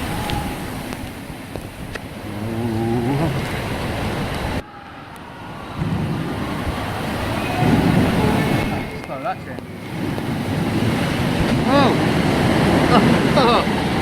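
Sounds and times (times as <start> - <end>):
rushing churning water: 0.0 - 14.0
short wavering voice-like call: 2.2 - 3.6.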